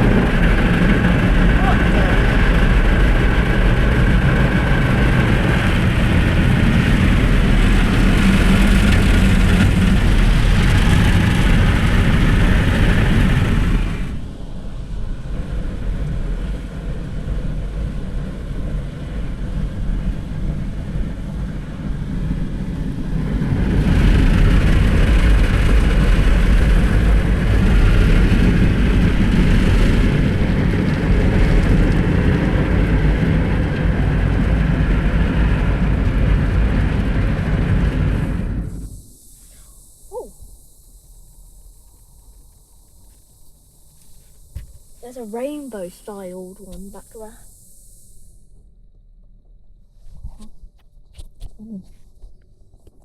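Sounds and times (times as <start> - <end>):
automatic car wash from inside car: 0.0 - 14.6, 45.0 - 47.4.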